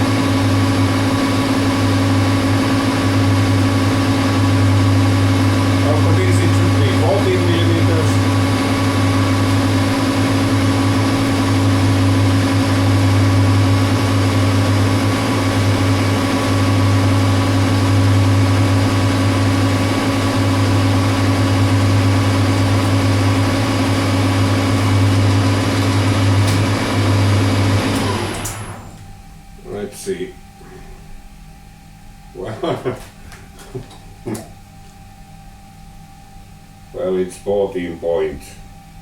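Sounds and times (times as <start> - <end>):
metal lathe running: 0.0 - 28.9.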